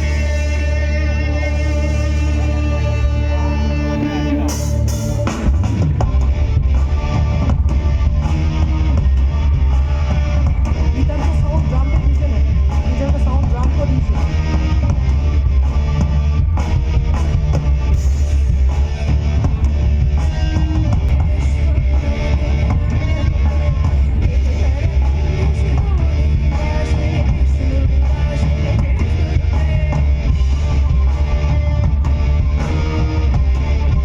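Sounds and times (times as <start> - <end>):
person singing: 0.0 - 8.3, 20.2 - 33.2
rock band playing live: 0.0 - 34.0.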